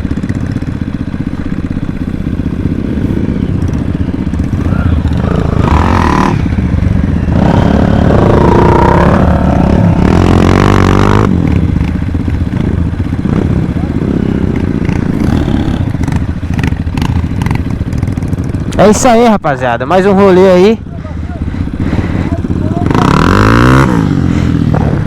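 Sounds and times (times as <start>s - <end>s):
dirt bike engine revving: 0.0s - 19.3s, 21.4s - 25.0s.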